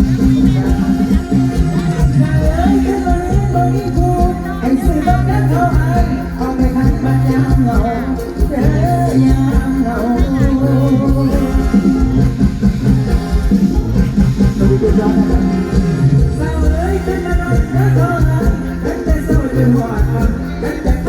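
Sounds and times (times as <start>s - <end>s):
live band playing: 0.0s - 21.0s
person singing: 0.0s - 21.0s
pulsing bass line: 0.0s - 21.0s.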